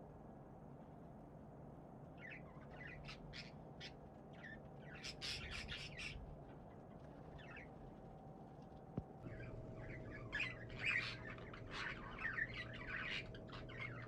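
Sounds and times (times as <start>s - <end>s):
budgerigars chirping and squawking: 2.2s - 6.2s, 9.3s - 14.0s.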